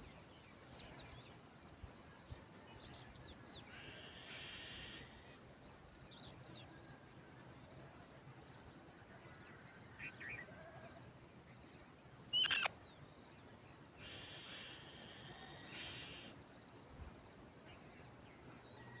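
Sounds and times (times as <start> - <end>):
raspy bird calls: 3.7 - 5.2, 12.3 - 12.8, 14.0 - 16.3
birds chirping: 11.5 - 16.3.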